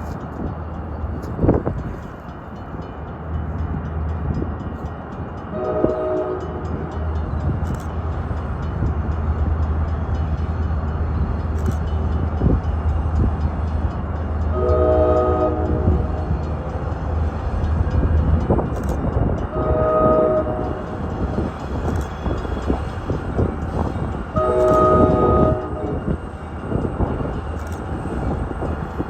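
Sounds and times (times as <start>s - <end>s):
freight train rumble: 0.0s - 29.0s
train air horn blasts: 5.5s - 6.9s, 14.5s - 16.4s, 19.5s - 21.0s, 24.3s - 26.2s.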